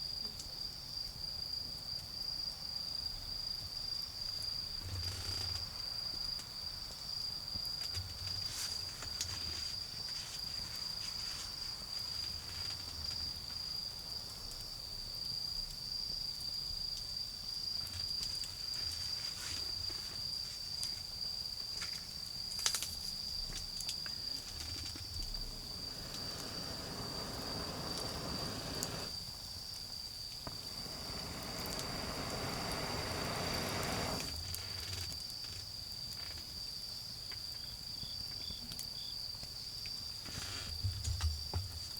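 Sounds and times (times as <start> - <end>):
crickets trilling: 0.0 - 41.9
wood fire crackling: 24.2 - 29.4, 30.3 - 34.9
broad rushing noise: 25.3 - 29.2, 30.5 - 34.4.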